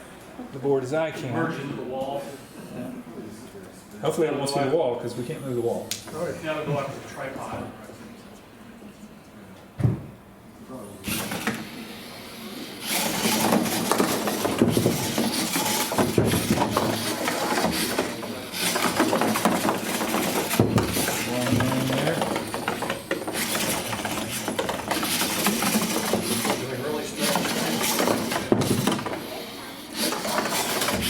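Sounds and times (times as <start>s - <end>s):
small robot wheels and motors clattering: 11.0s - 31.0s.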